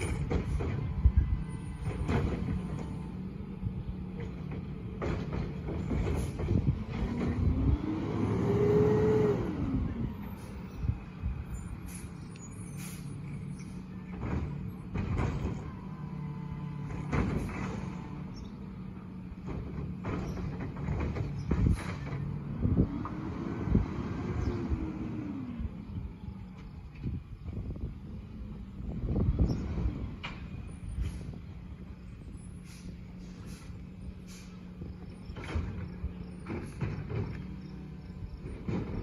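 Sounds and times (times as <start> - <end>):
sharp clunks and knocks: 0.0 - 1.0, 1.8 - 3.1, 4.1 - 7.6, 14.1 - 15.8, 16.8 - 18.2, 19.4 - 22.4, 35.2 - 39.0
truck engine revving: 0.0 - 39.0.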